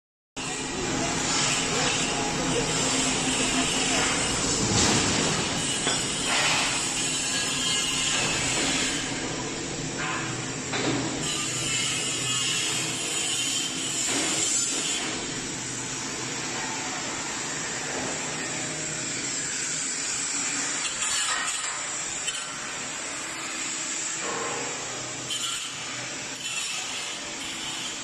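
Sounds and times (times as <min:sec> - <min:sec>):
industrial machinery humming: 0:00.4 - 0:21.0.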